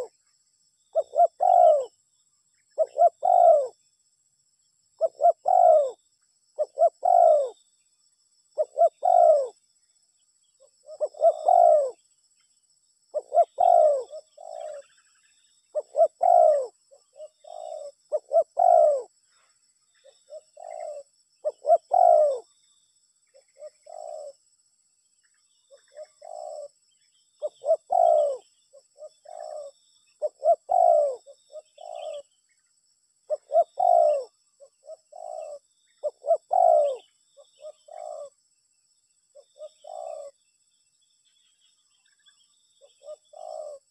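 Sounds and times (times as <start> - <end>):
dove cooing: 0.9 - 2.0, 2.7 - 3.8, 5.0 - 6.0, 6.6 - 7.6, 8.6 - 9.6, 10.6 - 12.0, 13.1 - 15.1, 15.7 - 19.1, 20.0 - 22.6, 23.3 - 24.4, 25.7 - 26.8, 27.4 - 32.3, 33.3 - 38.4, 39.3 - 40.4, 42.8 - 43.9.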